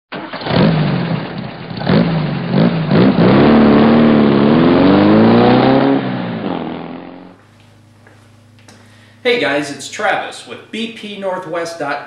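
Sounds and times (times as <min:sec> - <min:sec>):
car engine revving: 0:00.2 - 0:07.4.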